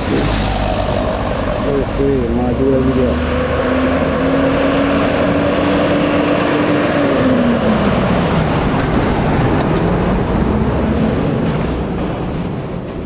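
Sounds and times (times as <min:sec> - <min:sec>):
truck diesel engine climbing: 0:00.0 - 0:13.0.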